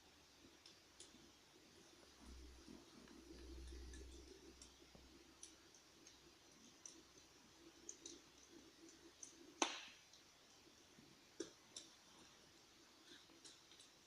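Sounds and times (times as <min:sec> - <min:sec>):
electric fireplace crackling: 0:00.0 - 0:14.0
faint low hum: 0:00.0 - 0:14.0.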